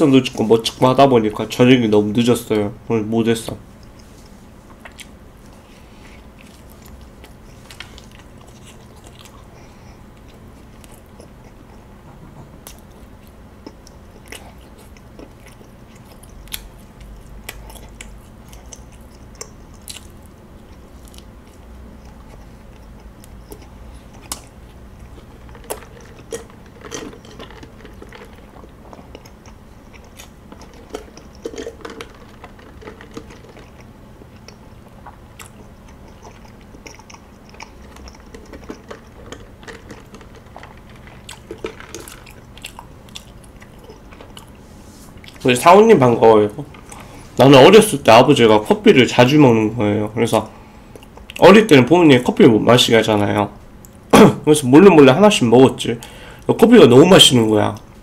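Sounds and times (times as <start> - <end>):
biting and chewing toast: 6.2 - 11.9, 12.6 - 45.5
wet mouth clicks: 10.2 - 44.6.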